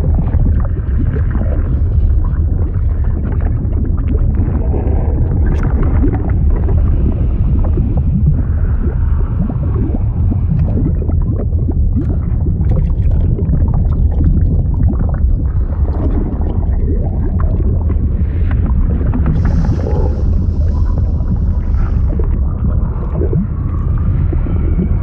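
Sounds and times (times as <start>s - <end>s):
churning water rumble: 0.0s - 25.0s
water bubbling and gurgling: 0.0s - 25.0s.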